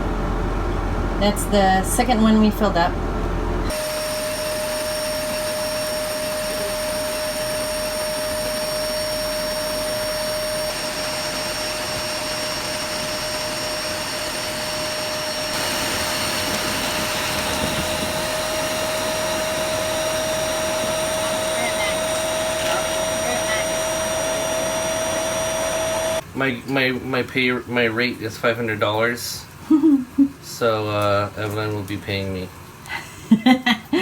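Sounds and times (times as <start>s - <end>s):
vacuum cleaner running: 0.0s - 26.3s.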